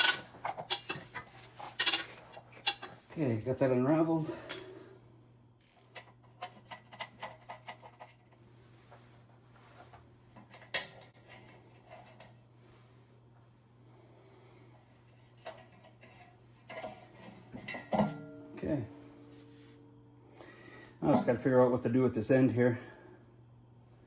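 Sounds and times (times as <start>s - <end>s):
steady low hum: 8.2s - 24.0s.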